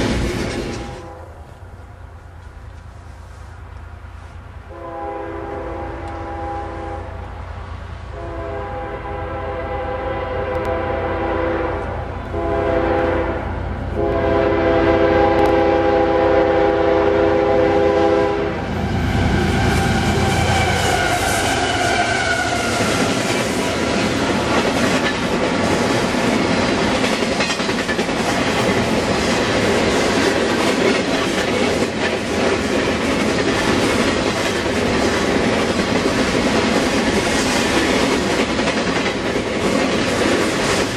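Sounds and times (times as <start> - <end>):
wheels clacking over rail joints: 0.0 - 1.0, 20.3 - 40.9
freight cars rolling on rails: 0.0 - 4.7, 18.5 - 40.9
locomotive passing rumble: 0.0 - 40.9
locomotive horn blasts: 0.8 - 1.4, 4.7 - 7.3, 8.1 - 22.7.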